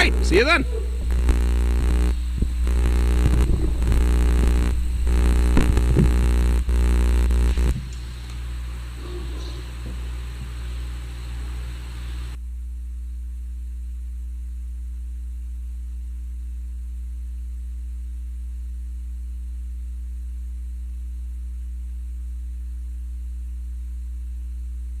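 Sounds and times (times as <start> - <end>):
faint hiss: 0.0 - 12.4
low electrical hum: 0.0 - 25.0.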